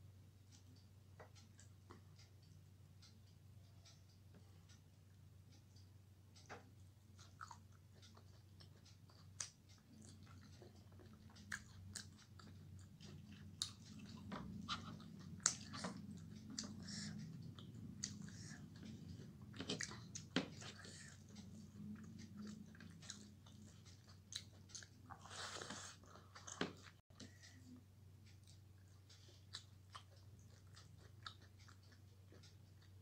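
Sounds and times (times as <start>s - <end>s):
chewing and wet mouth smacks: 7.2s - 27.4s, 28.4s - 32.9s.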